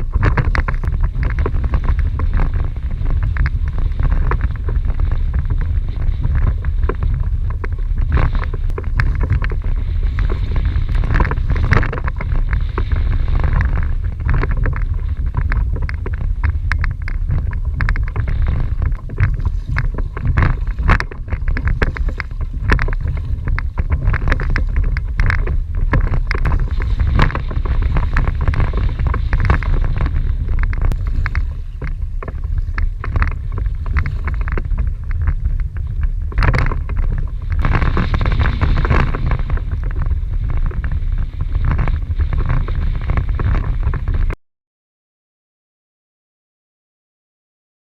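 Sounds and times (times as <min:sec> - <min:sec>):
water slapping against kayak: 0:00.0 - 0:44.3
wind buffeting microphone: 0:00.0 - 0:44.4.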